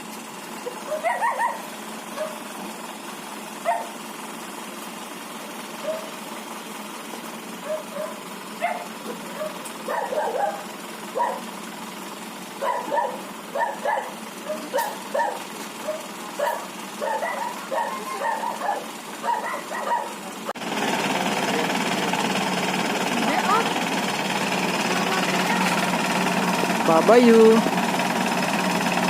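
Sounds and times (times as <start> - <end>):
dog barking: 0.6 - 2.4, 3.6 - 4.0, 5.8 - 6.1, 7.6 - 11.5, 12.6 - 20.2
loud steady noise: 20.5 - 29.0.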